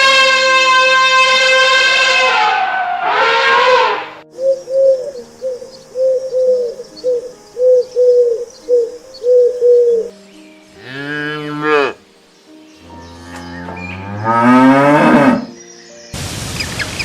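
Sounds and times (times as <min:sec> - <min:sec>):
cow mooing: 0:00.0 - 0:04.2, 0:10.8 - 0:12.0, 0:12.9 - 0:15.6
dove cooing: 0:04.3 - 0:10.1.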